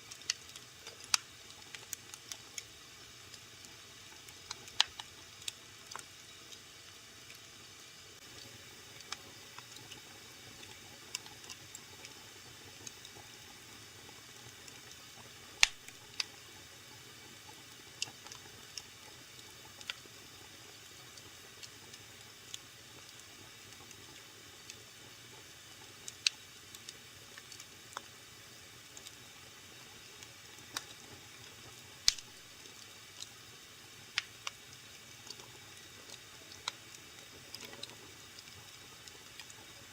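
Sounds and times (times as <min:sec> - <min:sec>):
wood fire crackling: 0:00.0 - 0:39.9
sharp pops of fire: 0:15.6 - 0:15.8, 0:32.1 - 0:32.3.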